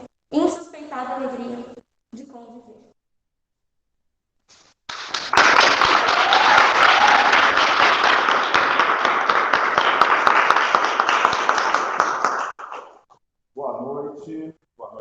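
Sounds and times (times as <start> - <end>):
audience applauding: 4.9 - 13.1.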